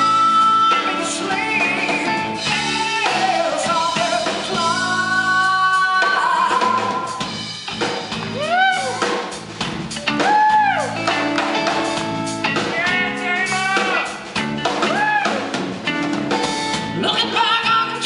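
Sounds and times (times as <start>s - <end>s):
drum kit beat: 0.0s - 18.0s.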